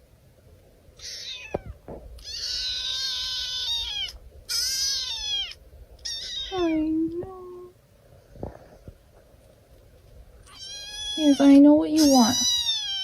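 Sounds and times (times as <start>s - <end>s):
cat meowing: 1.0s - 7.1s, 10.4s - 13.0s.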